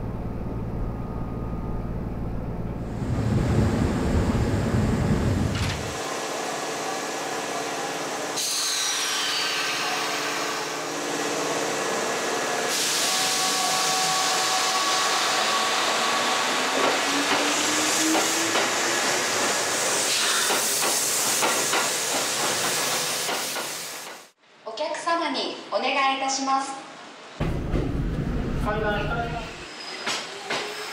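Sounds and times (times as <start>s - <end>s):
train wheel and air rush: 2.9s - 24.4s.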